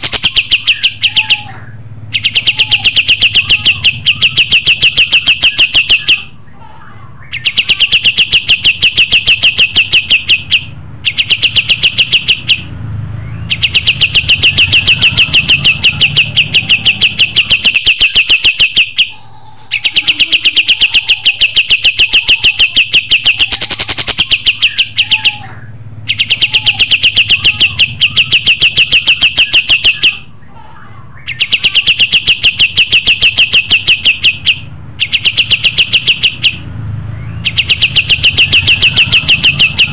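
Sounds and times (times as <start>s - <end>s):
songbird trilling: 0.0s - 6.3s, 7.2s - 30.4s, 31.2s - 39.9s.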